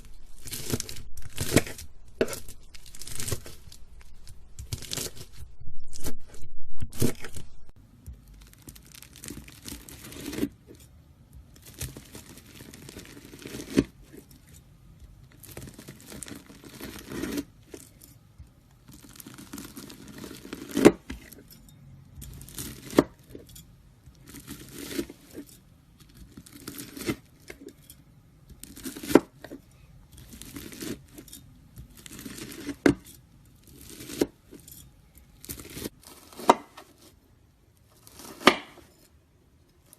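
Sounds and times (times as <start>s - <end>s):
knife cutting crunchy slime: 0.4s - 5.4s, 8.1s - 10.8s, 11.5s - 14.6s, 15.3s - 18.0s, 18.8s - 21.5s, 22.2s - 23.6s, 24.2s - 27.8s, 28.5s - 29.6s, 30.2s - 34.6s, 35.4s - 37.2s, 37.9s - 39.1s.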